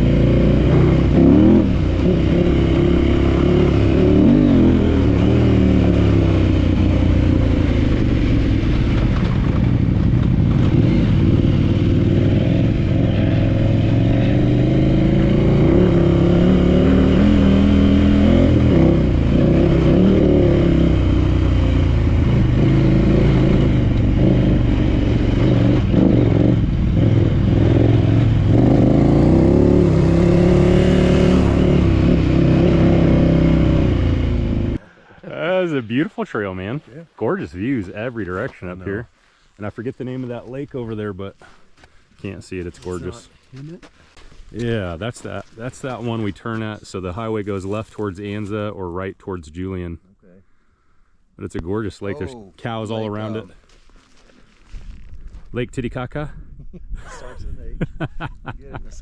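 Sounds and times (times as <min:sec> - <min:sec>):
motorcycle engine revving: 0:00.0 - 0:34.8.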